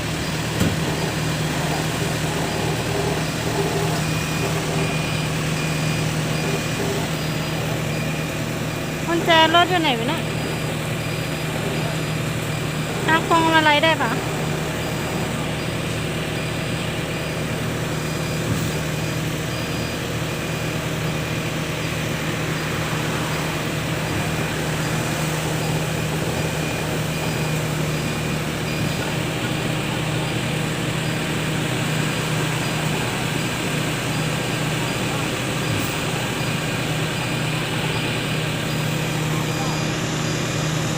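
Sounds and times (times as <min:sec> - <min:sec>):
truck engine running: 0:00.0 - 0:40.9.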